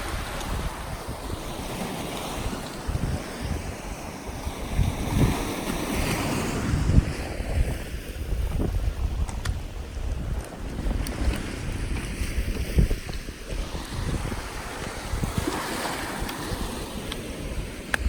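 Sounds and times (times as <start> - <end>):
sea surf hiss: 0.0 - 8.0
wind buffeting microphone: 0.0 - 18.0.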